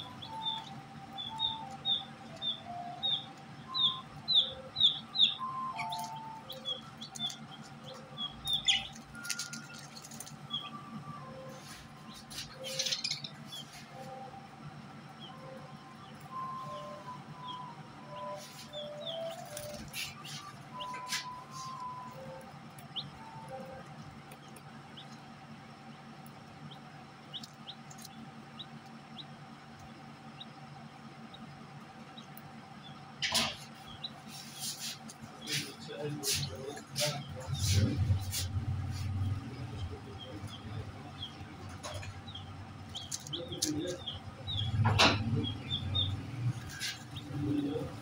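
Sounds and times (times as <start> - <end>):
small birds chirping: 0.0 - 48.0
steady low hum: 0.0 - 48.0
harsh bird burst: 33.2 - 41.4.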